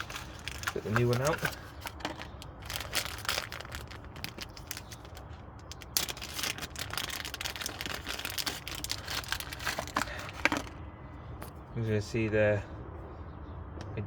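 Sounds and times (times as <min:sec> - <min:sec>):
plastic packaging crinkling and tearing: 0:00.0 - 0:10.8.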